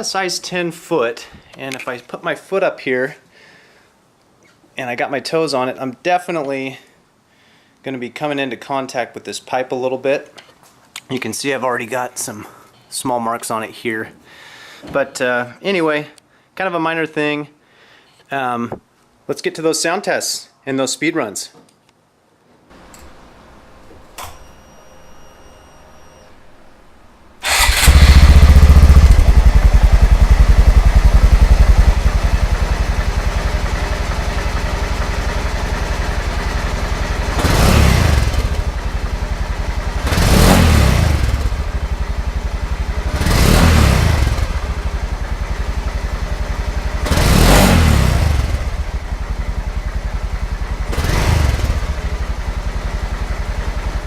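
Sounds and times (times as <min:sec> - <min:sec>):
engine revving: 0:27.4 - 0:34.0, 0:36.1 - 0:49.1, 0:50.2 - 0:52.8
motorcycle engine starting and idling: 0:27.4 - 0:54.0.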